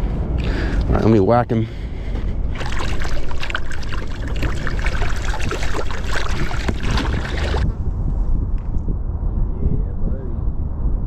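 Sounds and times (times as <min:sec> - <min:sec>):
wind rumble on microphone: 0:00.0 - 0:11.0
water splashing: 0:02.5 - 0:07.7.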